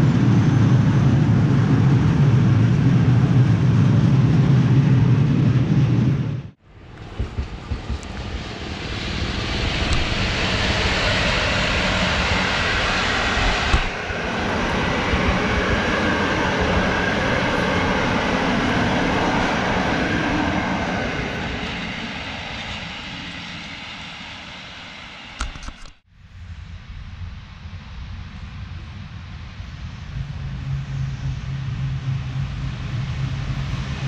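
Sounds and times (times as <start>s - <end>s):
passenger train passing: 0.0s - 25.4s.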